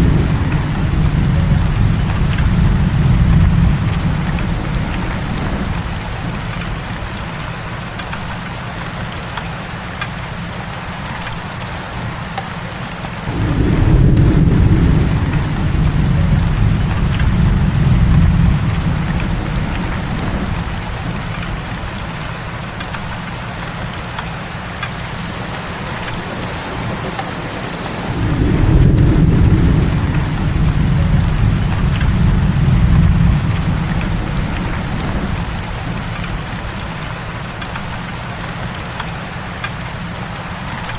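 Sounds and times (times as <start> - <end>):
thunder rumbling: 0.0 - 8.0, 13.2 - 23.7, 24.6 - 38.7
heavy rain falling: 0.0 - 40.9.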